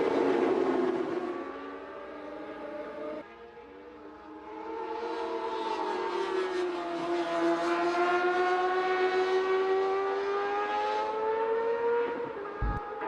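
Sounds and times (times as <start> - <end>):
racing motorcycle engine revving: 11.7 - 13.0.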